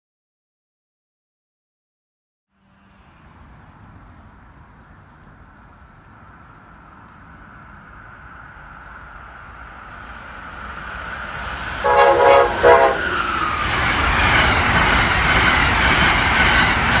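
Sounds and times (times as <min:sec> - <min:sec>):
train rushing past: 0:02.6 - 0:17.0
train horn blasts: 0:11.8 - 0:13.4.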